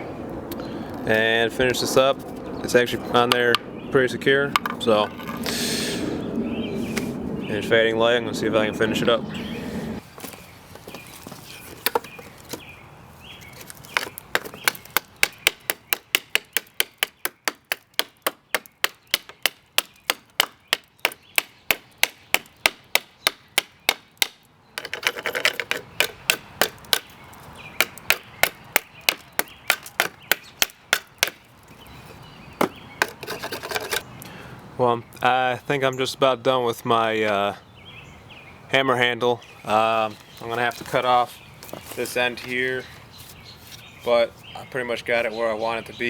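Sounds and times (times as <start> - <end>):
knife chopping into wood: 14.0 - 27.2, 27.8 - 31.4.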